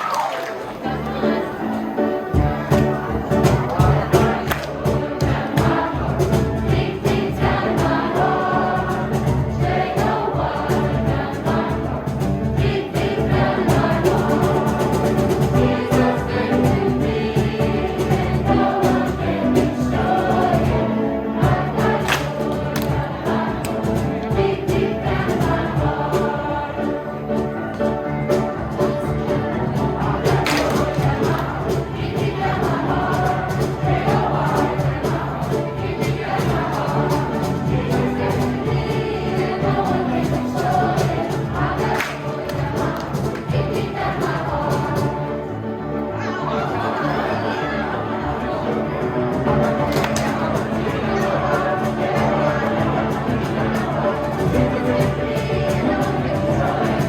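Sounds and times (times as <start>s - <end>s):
children's choir singing: 0.0s - 57.0s
music with steady beat: 2.3s - 45.3s.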